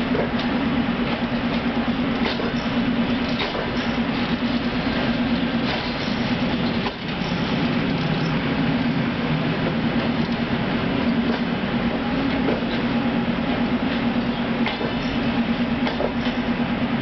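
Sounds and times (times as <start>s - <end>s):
train rumbling: 0.0s - 17.0s
wheels clicking over rail joints: 0.1s - 8.9s, 13.9s - 15.2s, 15.8s - 16.4s.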